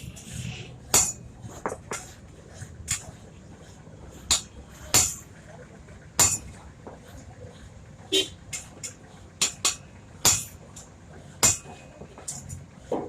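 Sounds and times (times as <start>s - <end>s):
hammer striking metal: 0.9s - 2.1s, 4.3s - 5.3s, 6.2s - 6.5s, 8.6s - 10.6s, 11.4s - 12.6s.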